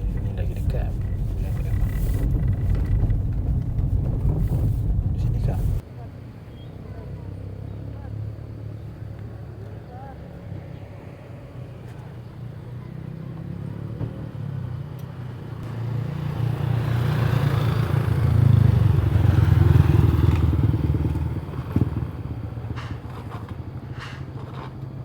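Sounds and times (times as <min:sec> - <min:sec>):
vehicle engine passing by: 0:00.0 - 0:05.8, 0:15.6 - 0:24.2.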